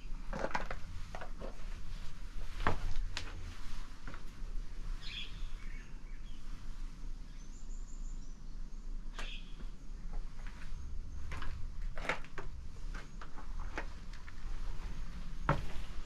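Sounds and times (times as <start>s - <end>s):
outdoor background noise: 0.0s - 16.0s
birds chirping: 4.9s - 16.0s
footstep scuff: 14.7s - 16.0s.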